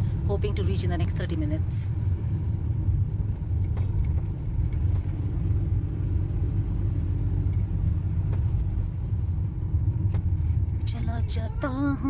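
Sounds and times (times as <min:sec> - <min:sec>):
car engine and road noise: 0:00.0 - 0:12.0
faint hum: 0:10.7 - 0:12.0.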